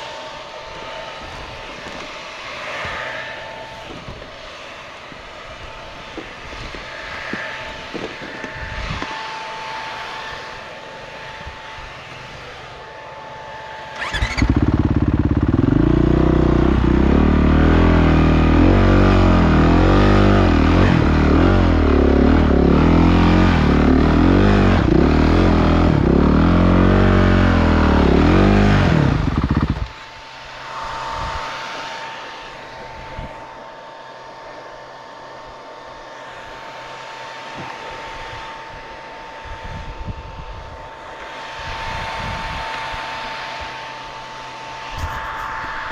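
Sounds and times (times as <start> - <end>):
distant engine noise: 0.0 - 45.9
motorcycle engines revving: 13.9 - 33.4.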